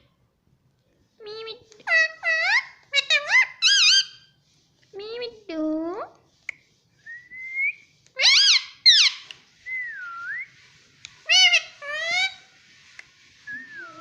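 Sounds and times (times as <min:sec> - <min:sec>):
parrot shrill calls: 0:01.9 - 0:04.3, 0:08.2 - 0:09.4, 0:11.2 - 0:12.5
parrot whistling glides: 0:07.0 - 0:10.6, 0:11.2 - 0:14.0.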